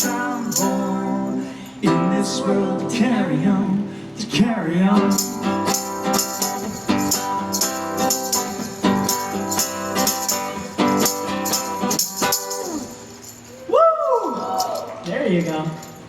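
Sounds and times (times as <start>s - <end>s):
shaker rattling: 0.0s - 1.4s, 5.1s - 16.0s
acoustic guitar strumming: 0.0s - 13.5s
person shouting: 12.5s - 15.0s.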